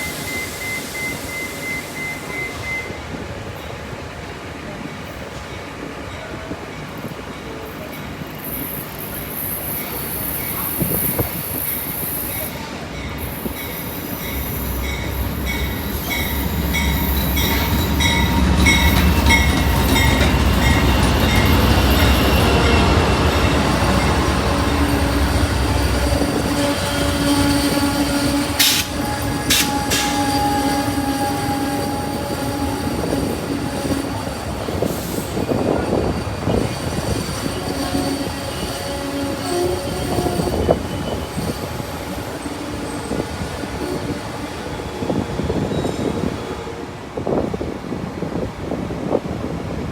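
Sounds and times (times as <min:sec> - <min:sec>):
train wheels squealing: 0:00.0 - 0:03.0, 0:07.5 - 0:46.7
sharp clacks of train cars: 0:09.8 - 0:38.7
diesel locomotive rumble: 0:12.6 - 0:47.6
train bell dinging: 0:12.9 - 0:44.3.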